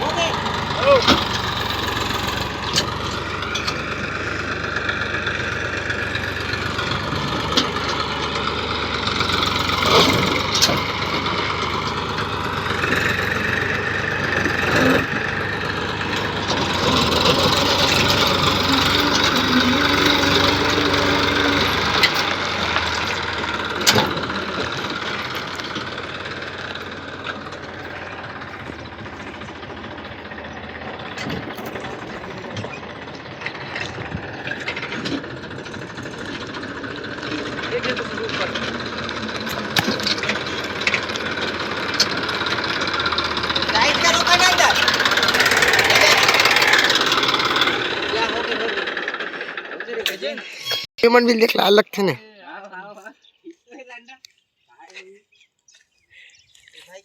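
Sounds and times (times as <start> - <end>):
tractor diesel engine revving: 0.0 - 52.2.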